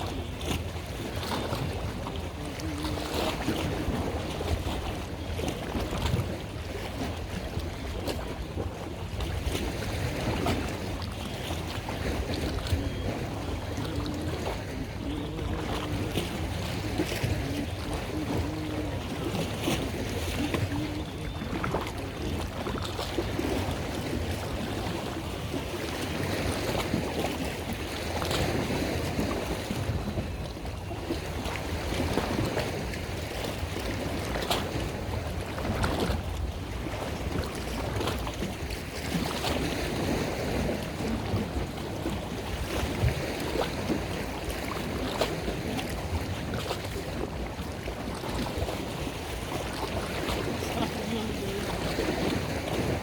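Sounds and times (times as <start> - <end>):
water and wind rushing: 0.0 - 53.0.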